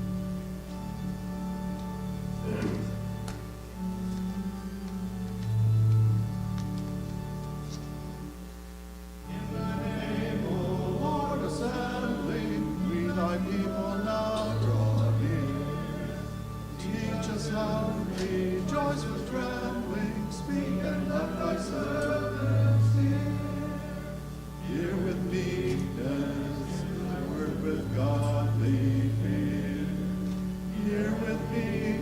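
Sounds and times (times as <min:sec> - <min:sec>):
congregation singing a hymn: 0:00.0 - 0:08.3, 0:09.2 - 0:32.0
instrumental accompaniment: 0:00.0 - 0:08.4, 0:09.2 - 0:32.0.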